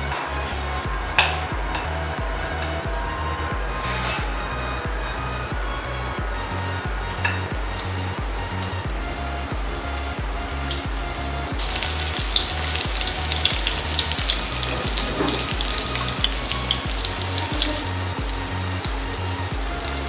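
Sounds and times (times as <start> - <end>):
batter frying in hot oil: 7.2 - 20.0.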